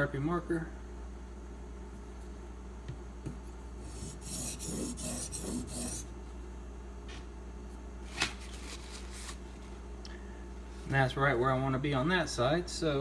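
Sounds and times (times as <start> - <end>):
knife scraping on sharpening stone: 4.0 - 6.0.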